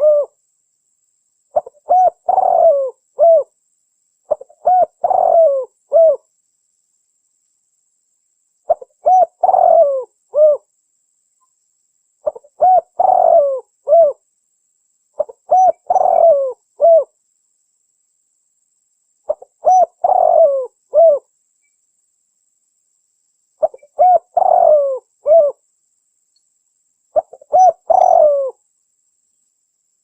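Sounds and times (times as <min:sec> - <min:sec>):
dove cooing: 0:00.0 - 0:00.4, 0:01.6 - 0:03.5, 0:04.3 - 0:06.2, 0:08.7 - 0:10.7, 0:12.2 - 0:14.2, 0:15.2 - 0:17.1, 0:19.3 - 0:21.3, 0:23.6 - 0:25.6, 0:27.2 - 0:28.6.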